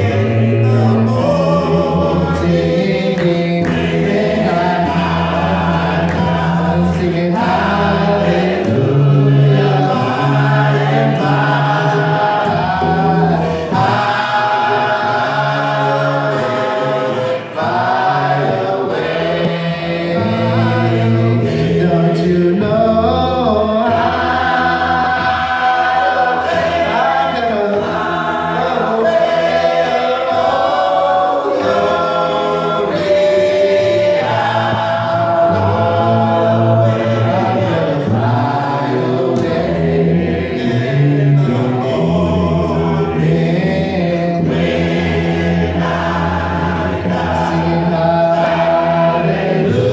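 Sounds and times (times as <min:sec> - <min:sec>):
congregation singing a hymn: 0:00.0 - 0:49.9.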